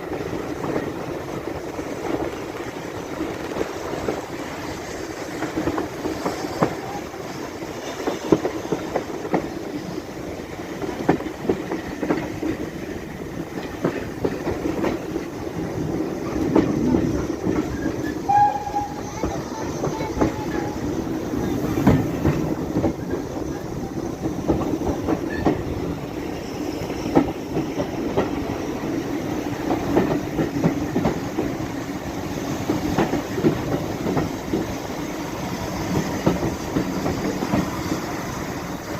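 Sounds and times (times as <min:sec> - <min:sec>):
train rumble: 0:00.0 - 0:38.9
wheels clicking over rail joints: 0:10.5 - 0:26.1, 0:27.1 - 0:38.8.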